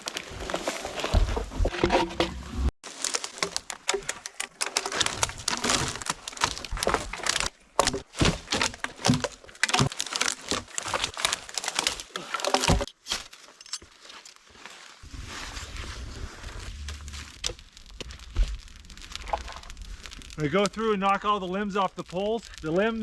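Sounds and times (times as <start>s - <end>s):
dry branches snapping: 2.9s - 14.9s, 16.5s - 20.9s.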